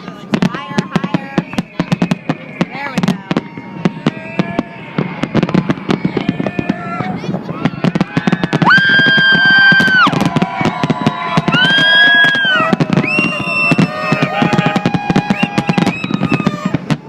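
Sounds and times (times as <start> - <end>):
fireworks crackling and banging: 0.0 - 17.0
horns blowing held notes: 12.0 - 16.9.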